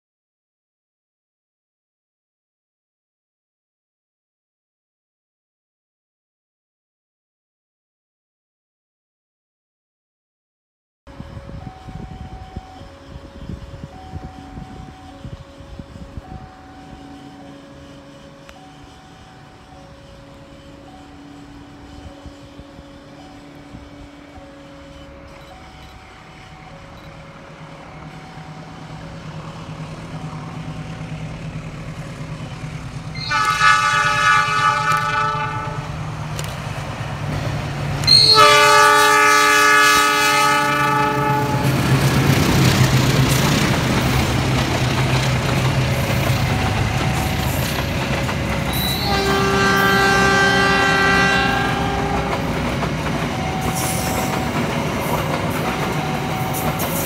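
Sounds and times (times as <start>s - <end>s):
locomotive engine rumble: 11.1s - 57.0s
multi-tone air horn blasts: 33.2s - 36.0s, 38.0s - 41.8s, 48.7s - 52.5s
train wheels clattering on rails: 41.6s - 57.0s.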